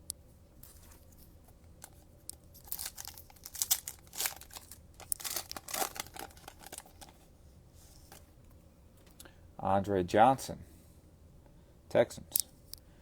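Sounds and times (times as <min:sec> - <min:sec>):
plastic wrapper tearing and crinkling: 0:02.6 - 0:07.2.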